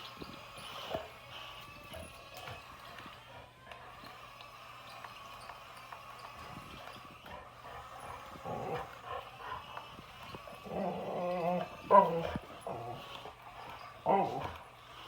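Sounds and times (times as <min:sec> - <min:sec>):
dog whining: 0:06.8 - 0:14.8.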